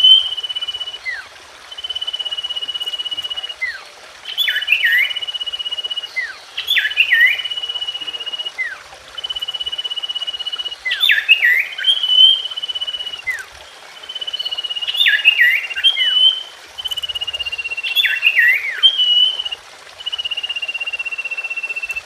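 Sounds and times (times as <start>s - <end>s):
bird song whistle and notes: 0.0s - 22.0s.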